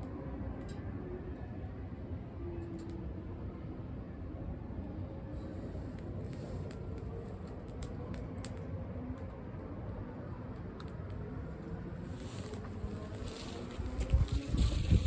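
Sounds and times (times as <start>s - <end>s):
kindling crackling: 5.4s - 15.0s
low rumble: 12.1s - 15.0s.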